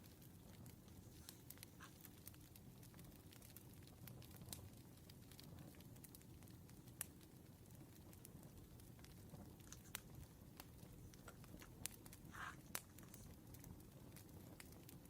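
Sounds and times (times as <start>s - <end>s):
campfire crackling: 0.0s - 15.0s
low steady rumble: 5.3s - 14.8s.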